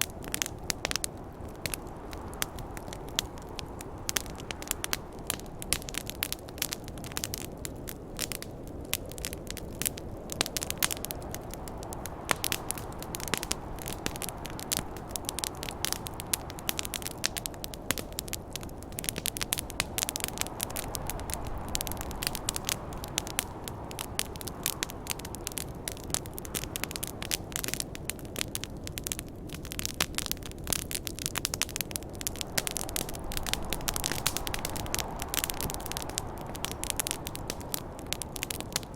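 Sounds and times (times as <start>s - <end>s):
campfire crackling and popping: 0.0s - 38.9s
snowstorm wind: 0.0s - 38.9s.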